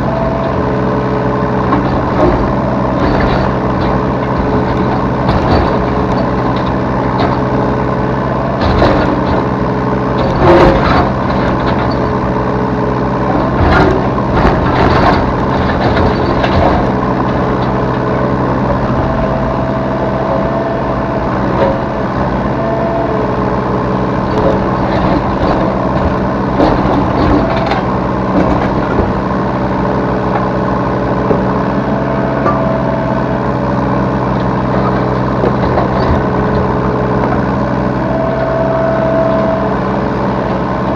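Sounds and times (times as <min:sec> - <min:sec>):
excavator diesel engine running: 0:00.0 - 0:40.9
thin mechanical whine: 0:31.0 - 0:40.9.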